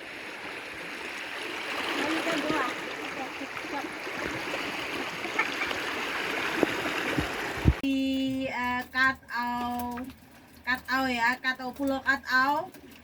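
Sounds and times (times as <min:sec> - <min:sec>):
water rushing past boat: 0:00.0 - 0:07.8.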